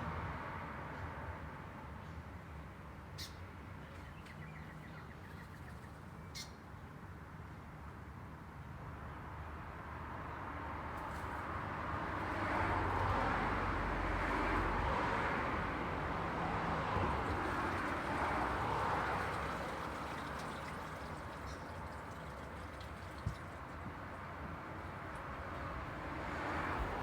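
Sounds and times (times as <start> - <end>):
vehicle engines passing: 10.0 - 27.0
tyres hissing on road: 16.5 - 24.0.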